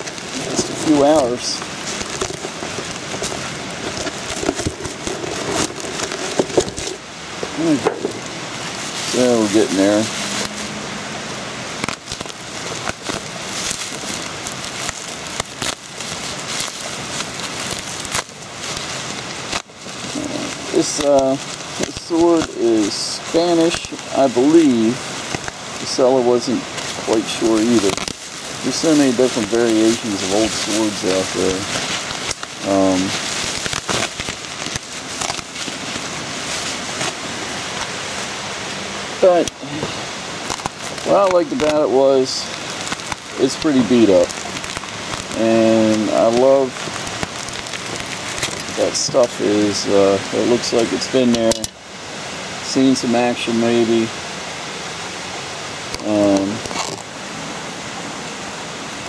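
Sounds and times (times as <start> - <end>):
wrapping snapping: 0.0 - 10.8, 11.8 - 38.2, 40.4 - 51.8, 55.8 - 57.1
parcel wrapping crinkling: 0.0 - 51.8, 55.8 - 57.2
heavy rain hissing: 0.0 - 59.0
handling clicks and knocks: 2.0 - 8.3.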